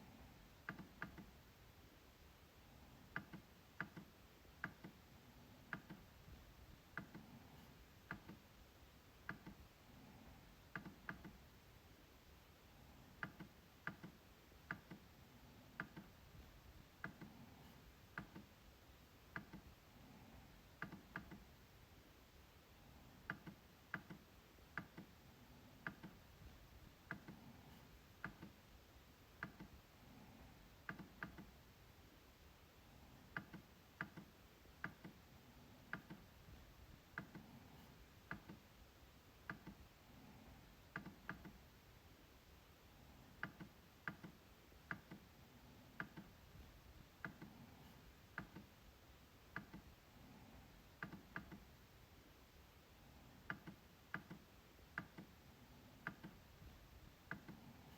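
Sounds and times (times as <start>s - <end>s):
trackpad clicking: 25.8s - 26.2s, 56.0s - 56.4s.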